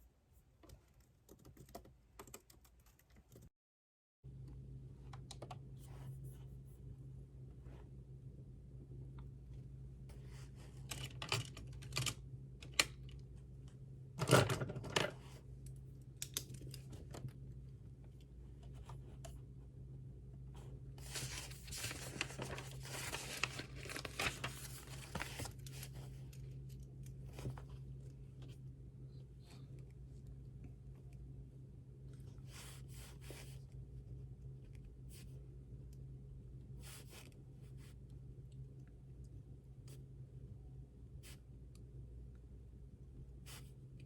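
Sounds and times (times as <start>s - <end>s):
low steady hum: 4.3s - 44.0s
paper rustling: 21.0s - 27.9s.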